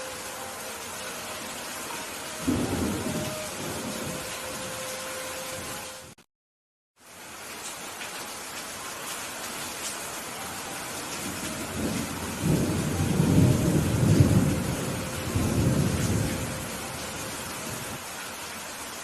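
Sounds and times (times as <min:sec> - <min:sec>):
steady rain: 0:00.0 - 0:06.2, 0:07.0 - 0:19.0
thunder rumbling: 0:02.4 - 0:04.8, 0:11.2 - 0:18.0.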